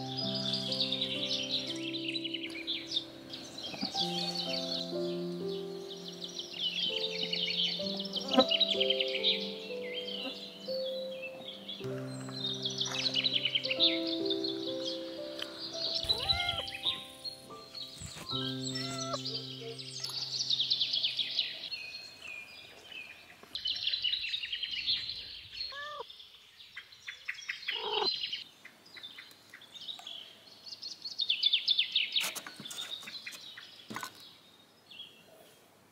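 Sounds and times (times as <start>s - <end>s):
songbirds singing falling trills: 0.0s - 35.2s
short lower bird calls: 13.2s - 21.6s, 27.6s - 28.2s.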